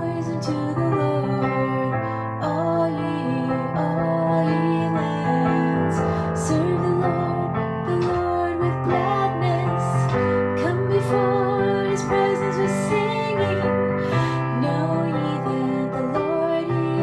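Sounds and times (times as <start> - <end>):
sustained piano chords: 0.0 - 17.0
woman singing with vibrato: 0.0 - 17.0.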